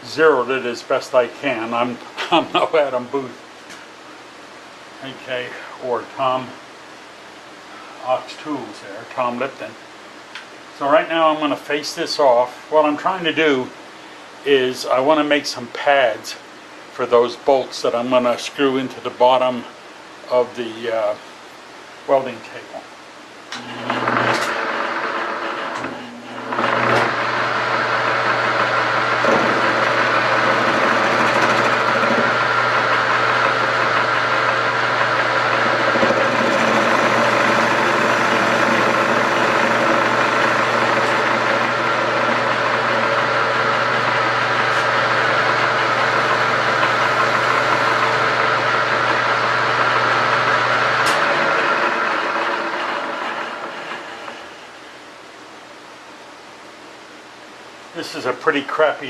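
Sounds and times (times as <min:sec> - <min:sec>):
lathe spindle spinning down: 0:23.6 - 0:54.8
metal lathe running: 0:23.6 - 0:54.8.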